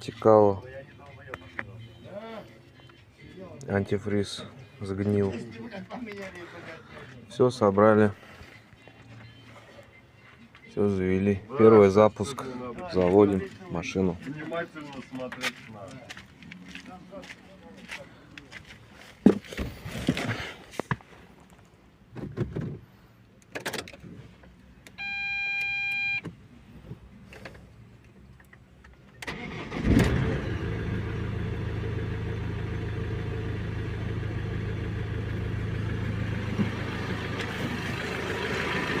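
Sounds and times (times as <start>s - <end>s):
single beep: 24.9s - 26.3s
van engine starting and idling: 29.0s - 39.0s.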